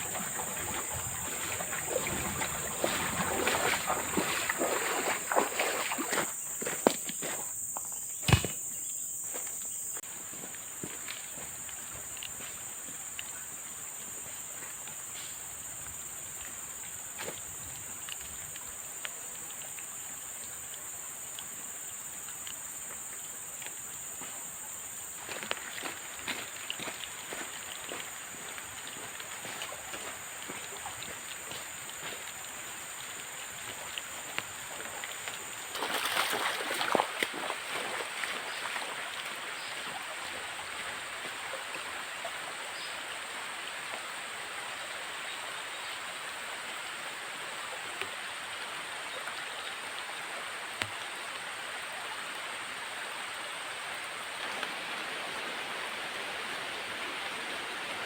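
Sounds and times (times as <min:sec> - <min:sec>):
river rushing: 0:00.0 - 0:06.3, 0:52.3 - 0:58.0.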